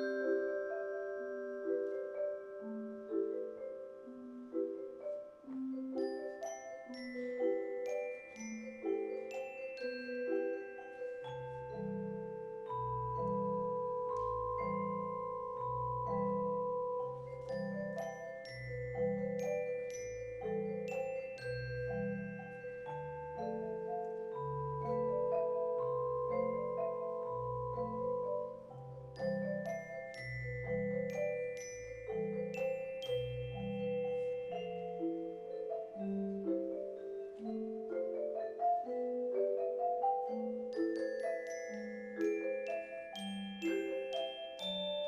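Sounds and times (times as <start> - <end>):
ringing mallet tones: 0.0 - 45.0
bright high mallet strikes: 5.0 - 45.0.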